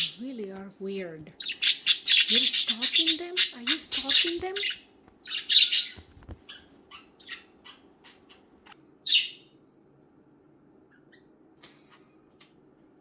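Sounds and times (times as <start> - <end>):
budgerigars chirping: 0.0 - 0.4, 1.4 - 9.5.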